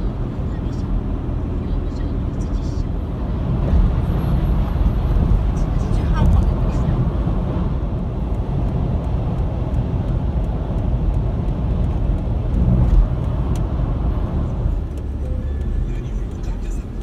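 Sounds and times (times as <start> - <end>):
car driving rumble: 0.0 - 17.0.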